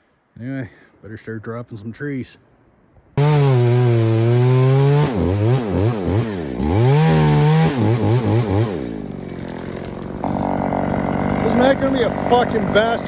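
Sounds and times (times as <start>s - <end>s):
chainsaw revving: 3.2s - 13.0s.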